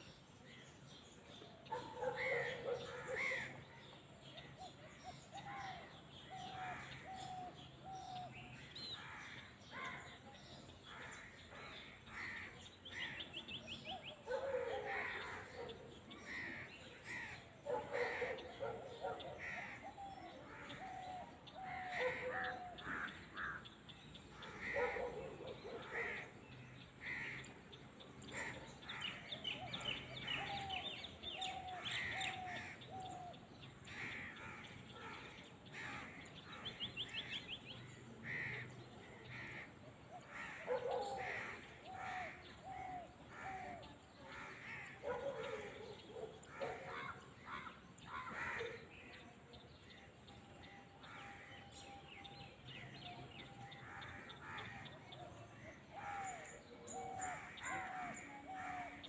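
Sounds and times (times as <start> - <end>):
birds calling: 0.9 - 59.0.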